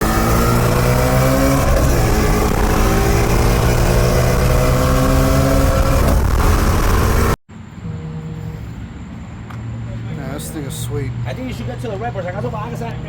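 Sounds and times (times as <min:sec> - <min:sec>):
car engine accelerating hard: 0:00.0 - 0:07.4.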